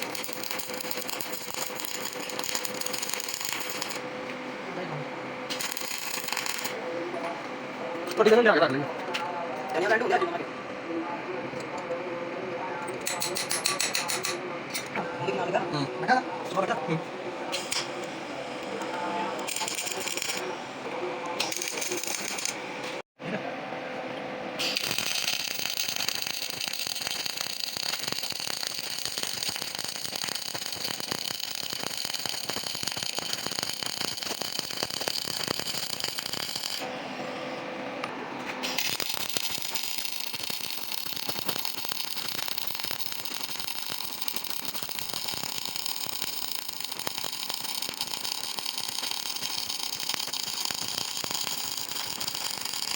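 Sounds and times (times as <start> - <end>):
welding arc crackling: 0.0 - 4.0, 5.5 - 6.8, 19.4 - 20.5, 21.3 - 22.6, 24.6 - 36.9, 38.6 - 52.9.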